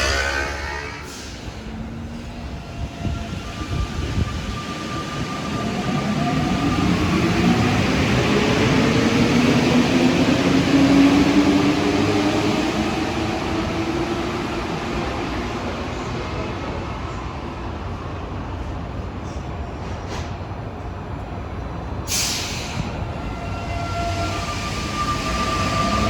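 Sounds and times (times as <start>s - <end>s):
metro train rumble: 0.0s - 26.0s
air brake hiss: 1.0s - 1.6s, 22.1s - 22.9s.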